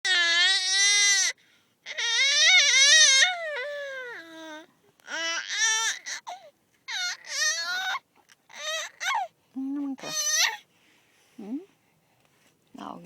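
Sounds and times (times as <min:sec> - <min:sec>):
baby crying: 0:00.0 - 0:09.3, 0:10.0 - 0:10.6.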